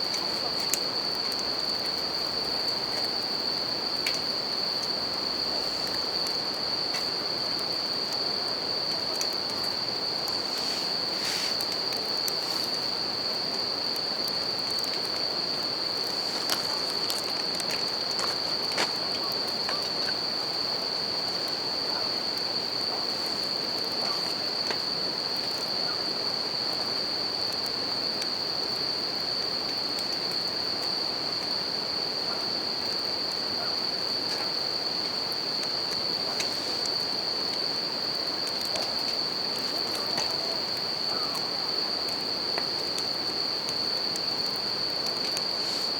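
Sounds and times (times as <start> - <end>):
fire popping: 0.0 - 25.6, 34.3 - 45.9
campfire crackling: 0.0 - 45.9
crickets trilling: 0.0 - 45.9.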